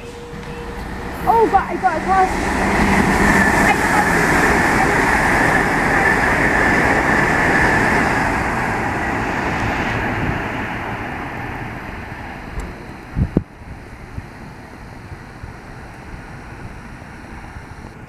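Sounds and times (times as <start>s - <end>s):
steady high ring: 0.0s - 5.4s
train rolling past: 0.0s - 17.6s.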